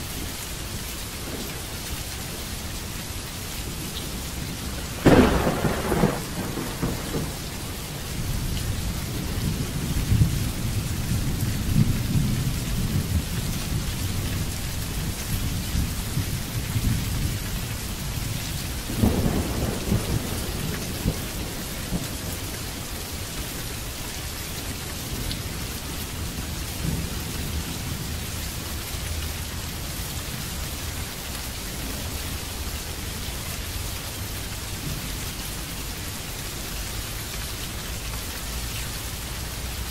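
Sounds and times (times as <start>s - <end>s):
steady rain falling: 0.0s - 39.9s
low thunder rumbling: 3.7s - 24.4s
sharp thunderclap: 4.8s - 7.5s, 18.9s - 22.4s.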